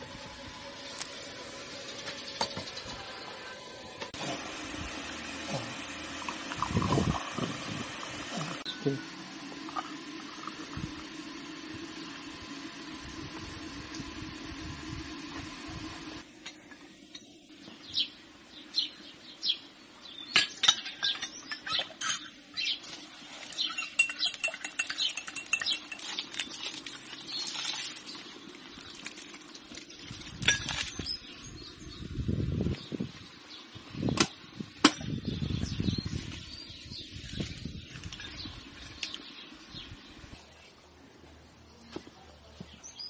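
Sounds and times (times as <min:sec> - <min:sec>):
dishes and utensils clinking: 0:20.4 - 0:22.3, 0:23.5 - 0:26.9.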